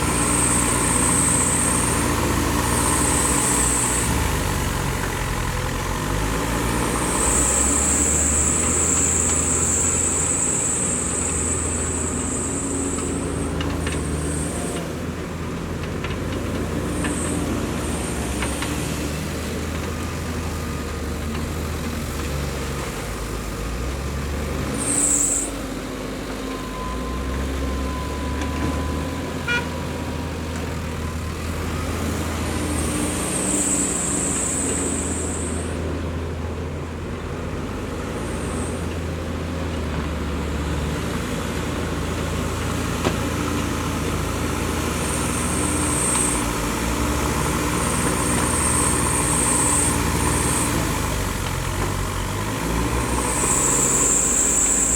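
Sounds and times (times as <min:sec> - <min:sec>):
heavy diesel engines droning: 0:00.0 - 0:54.9
short high-pitched squeals: 0:07.0 - 0:15.0, 0:24.7 - 0:30.3, 0:31.0 - 0:36.0, 0:52.7 - 0:54.9.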